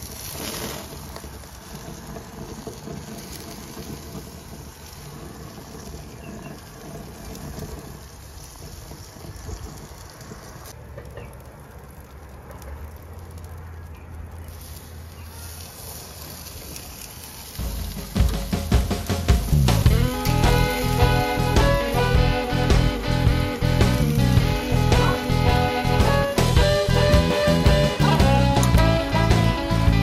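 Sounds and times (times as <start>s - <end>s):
rain falling: 0.0s - 10.8s, 11.4s - 30.0s
low hum: 19.4s - 30.0s.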